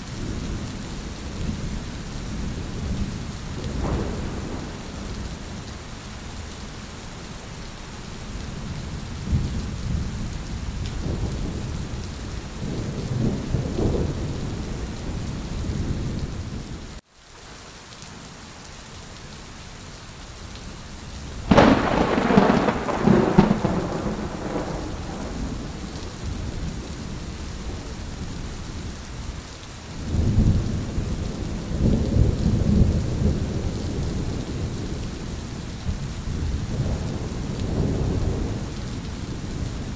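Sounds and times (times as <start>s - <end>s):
steady rain: 0.0s - 39.9s
rolling thunder: 0.2s - 5.9s, 8.6s - 16.8s, 21.4s - 29.3s, 30.0s - 39.9s
sharp loud thunderclap: 3.6s - 5.4s, 21.5s - 26.8s.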